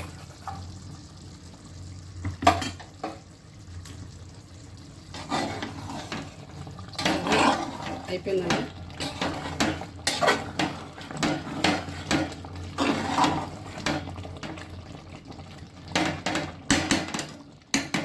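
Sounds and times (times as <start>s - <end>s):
metal spoon scraping a pot: 5.1s - 14.1s.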